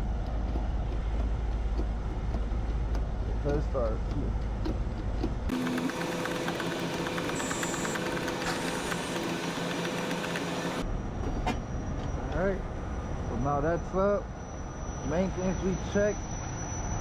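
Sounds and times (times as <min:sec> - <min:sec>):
lift mechanism ticking: 0:05.5 - 0:10.8.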